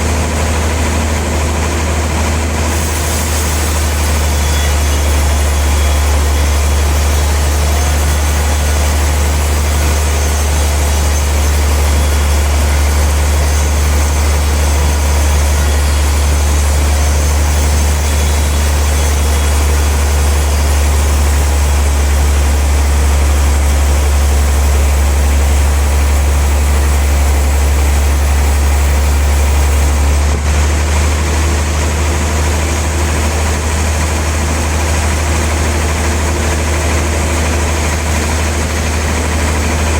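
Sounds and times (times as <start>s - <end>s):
sawmill machinery droning: 0.0s - 39.9s.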